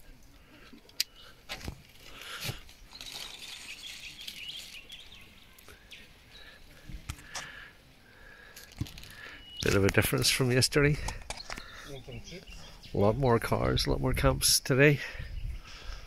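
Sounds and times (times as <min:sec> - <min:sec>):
birds chirping and calling: 0:00.3 - 0:16.0.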